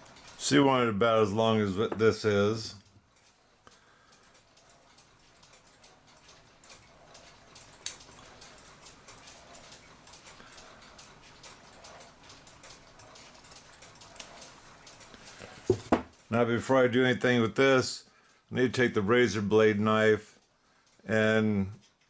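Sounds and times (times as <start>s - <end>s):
small clicks and ticks: 0.0s - 0.6s, 2.7s - 16.3s, 20.0s - 22.0s.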